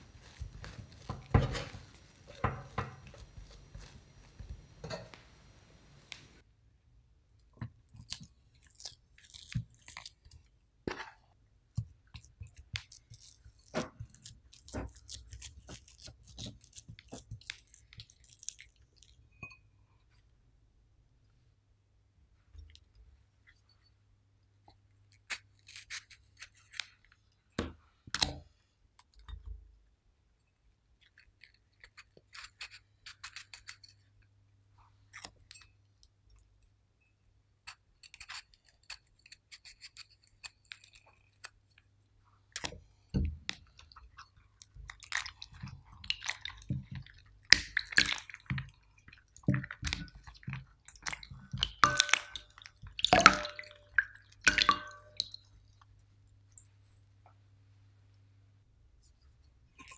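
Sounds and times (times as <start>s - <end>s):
sticky food squishing: 0.0s - 6.4s, 7.5s - 19.4s, 37.7s - 56.8s.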